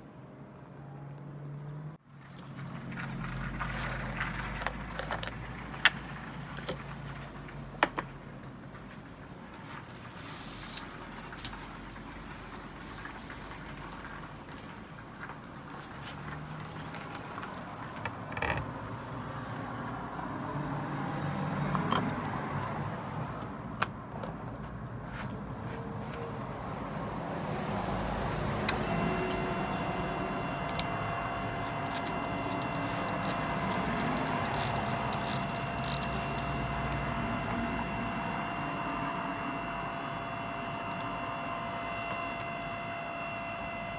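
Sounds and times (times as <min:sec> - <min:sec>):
small motor whining: 0:27.5 - 0:43.9.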